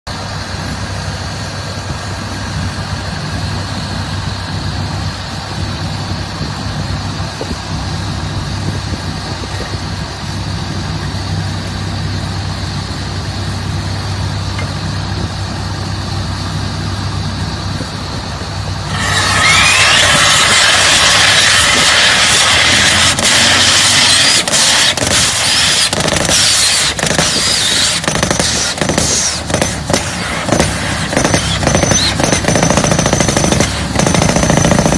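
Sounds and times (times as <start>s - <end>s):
drill rig engine humming: 0.1s - 34.9s
rattle of rapid hammer strikes: 24.2s - 34.9s.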